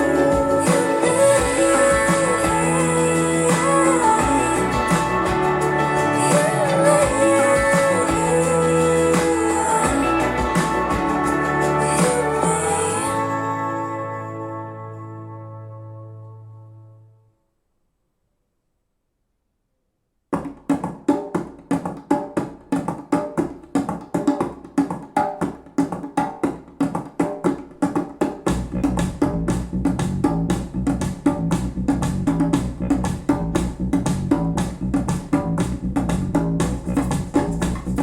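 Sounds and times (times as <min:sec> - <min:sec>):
plucked percussive rhythm: 0:00.0 - 0:13.2, 0:20.4 - 0:38.0
heavy bass line: 0:00.0 - 0:17.0, 0:28.5 - 0:38.0.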